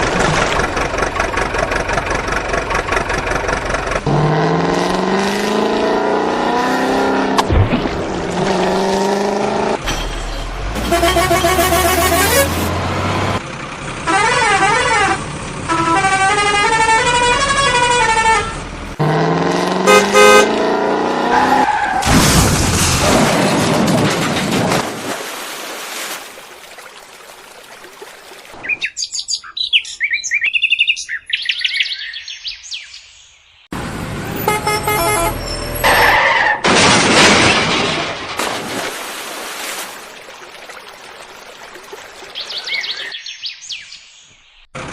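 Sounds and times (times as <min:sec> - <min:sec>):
cartoon horns honking: 0:10.6 - 0:12.8, 0:14.0 - 0:19.2, 0:19.8 - 0:21.7, 0:34.2 - 0:36.6.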